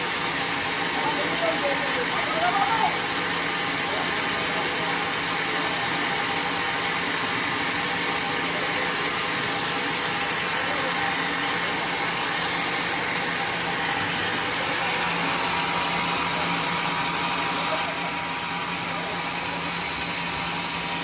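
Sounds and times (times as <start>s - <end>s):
sawmill machinery hum: 0.0s - 21.0s.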